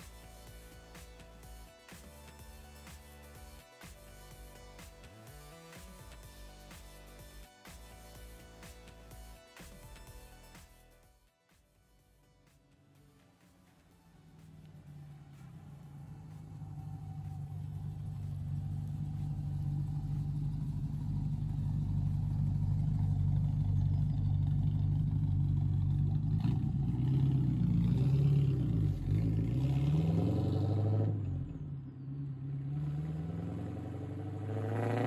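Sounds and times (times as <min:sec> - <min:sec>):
car engine driving past: 0:14.1 - 0:35.0.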